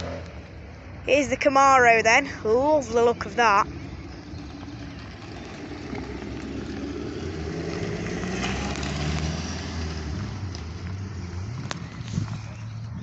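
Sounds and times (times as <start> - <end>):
car engine pulling away: 0.0 - 1.0, 2.9 - 13.0.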